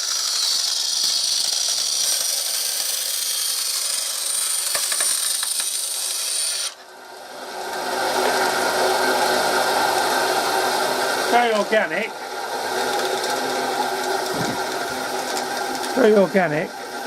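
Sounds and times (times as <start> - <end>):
power tool cutting plastic: 0.0 - 6.9, 7.7 - 17.0
rough low noise: 14.3 - 15.0.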